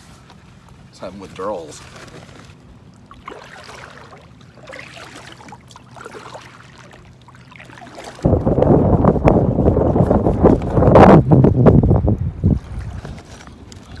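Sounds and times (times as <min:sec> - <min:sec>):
water trickling and lapping: 0:00.0 - 0:14.0
wind buffeting microphone: 0:08.2 - 0:14.0.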